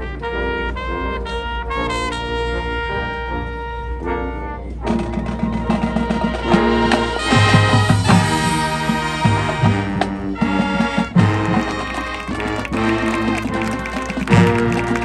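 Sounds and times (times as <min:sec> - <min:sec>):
marching band playing: 0:06.0 - 0:15.0
brass sustained chords: 0:11.0 - 0:15.0.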